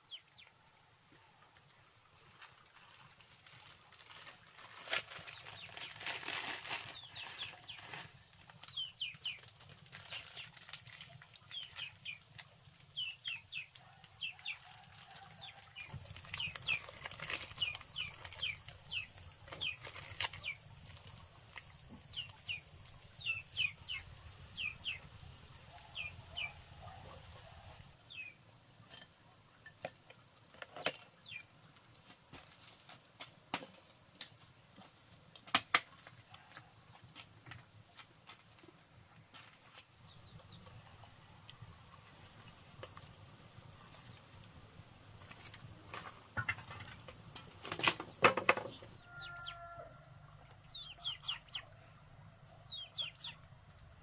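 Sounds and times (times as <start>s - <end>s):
rustles: 2.2s - 29.1s, 30.3s - 49.6s
birds chirping: 21.8s - 28.4s, 50.5s - 51.8s.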